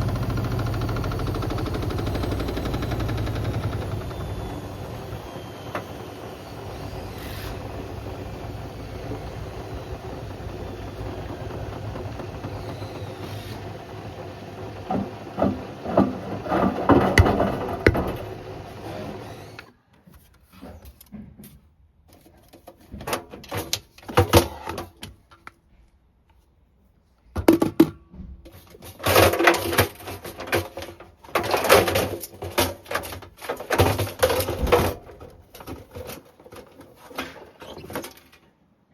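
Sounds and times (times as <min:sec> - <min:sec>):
clattering knocks and rattles: 0:00.0 - 0:18.8, 0:27.4 - 0:38.6
washing machine humming: 0:00.0 - 0:19.7.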